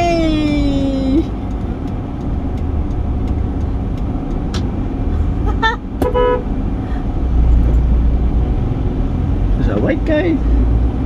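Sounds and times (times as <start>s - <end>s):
car road and engine rumble: 0.0s - 11.0s
vehicle horn toot: 6.0s - 6.5s.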